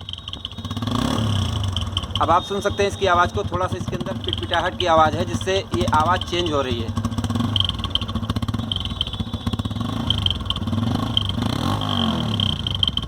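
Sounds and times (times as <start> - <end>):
exhaust sputter: 0.0 - 13.0
motorcycle engine idling: 0.0 - 13.0.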